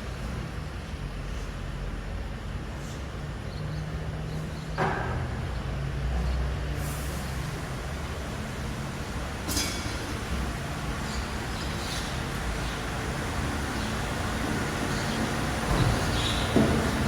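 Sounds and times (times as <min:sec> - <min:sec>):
diesel truck engine running: 0:05.4 - 0:17.0
sharp metallic clank: 0:09.5 - 0:10.0
clunk: 0:15.7 - 0:17.0.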